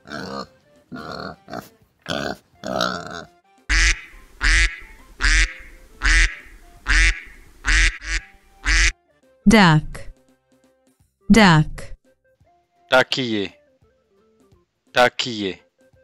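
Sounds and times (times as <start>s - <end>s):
pig grunts: 0.0s - 3.4s
duck quacking loudly: 2.1s - 9.0s.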